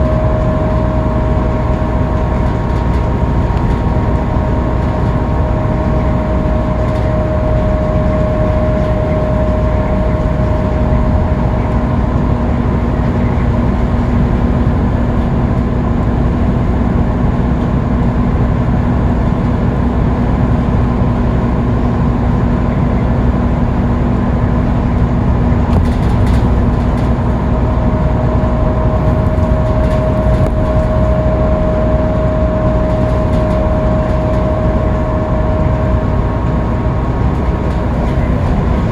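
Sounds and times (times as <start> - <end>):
thin steady whine: 0.0 - 16.2, 24.3 - 38.9
bus engine and road noise drone: 0.0 - 38.9.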